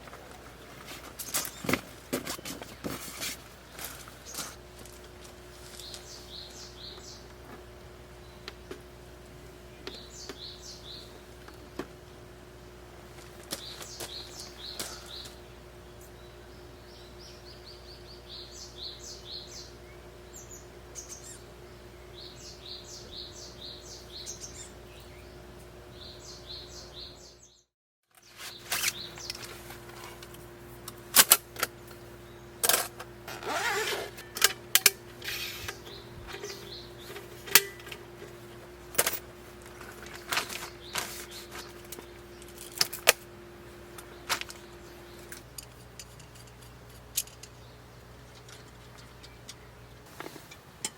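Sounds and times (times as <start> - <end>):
objects rustling: 0.0 - 6.2, 32.6 - 43.2, 48.2 - 50.9
steady low hum: 0.0 - 27.6, 28.3 - 50.9
birds chirping: 0.0 - 50.9.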